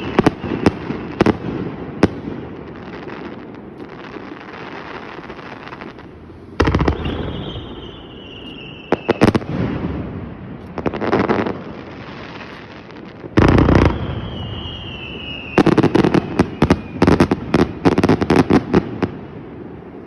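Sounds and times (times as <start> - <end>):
falling firework whistle: 0.0 - 2.2, 3.7 - 18.6
sharp firework cracks: 0.0 - 19.1
fireworks crackling: 0.0 - 20.0
firework boom: 3.7 - 11.7.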